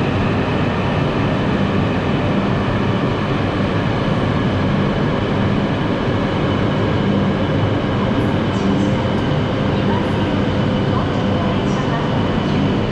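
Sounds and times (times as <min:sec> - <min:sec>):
train rumbling: 0:00.0 - 0:12.9.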